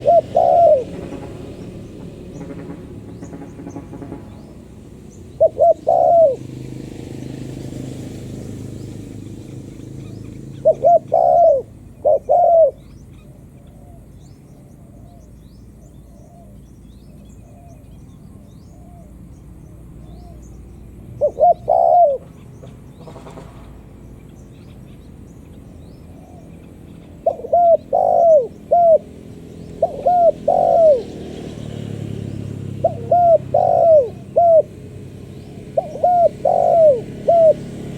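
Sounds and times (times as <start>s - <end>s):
dove cooing: 0.0s - 2.3s, 5.3s - 8.1s, 9.0s - 15.3s, 21.2s - 22.4s, 26.1s - 37.9s.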